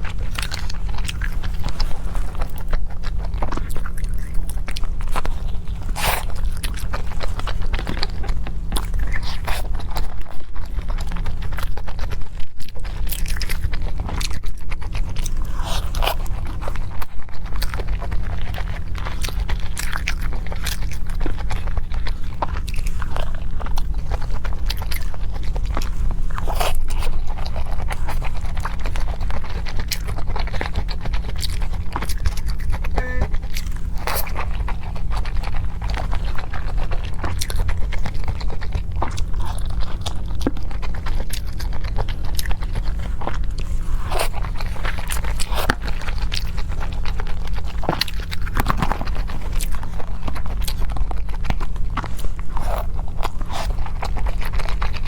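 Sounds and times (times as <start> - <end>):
person chewing food: 0.0 - 55.0
low hum: 15.0 - 55.0.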